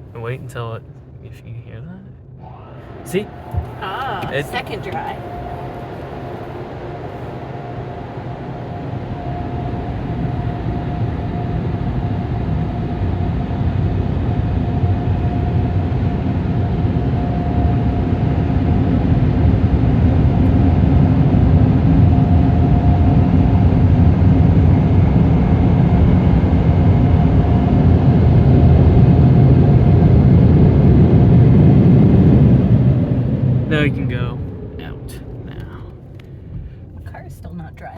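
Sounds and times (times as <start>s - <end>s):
faint steady whine: 0.0s - 37.9s
air-dryer blowers rushing: 2.4s - 7.8s.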